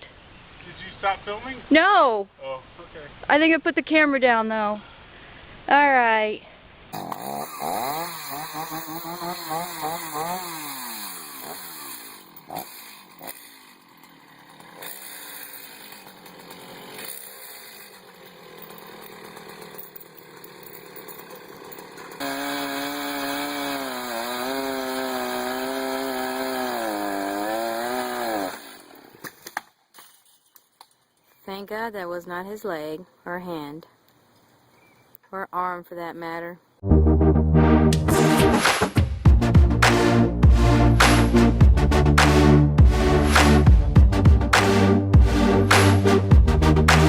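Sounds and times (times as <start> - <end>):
chainsaw revving: 6.9 - 29.2.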